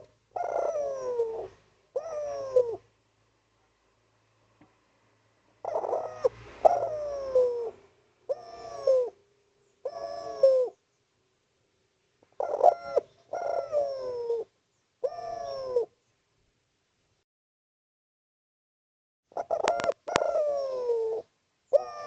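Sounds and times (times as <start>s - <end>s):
dove cooing: 0.0s - 2.9s, 5.6s - 9.2s, 9.8s - 10.8s, 12.2s - 16.0s, 19.3s - 22.0s.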